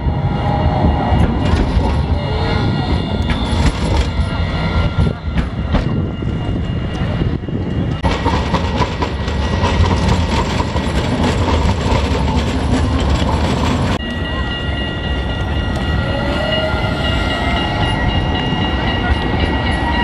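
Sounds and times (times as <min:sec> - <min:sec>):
tram rumbling on rails: 0:00.0 - 0:20.0.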